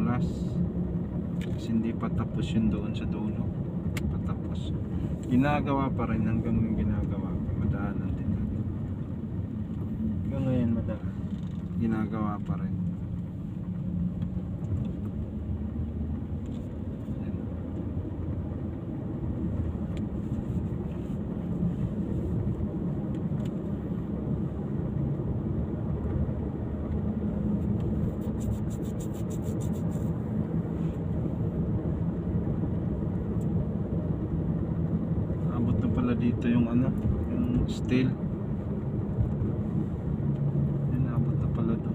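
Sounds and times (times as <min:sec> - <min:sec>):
road and wind noise: 0:00.0 - 0:41.9
vehicle engine hum: 0:00.0 - 0:41.9.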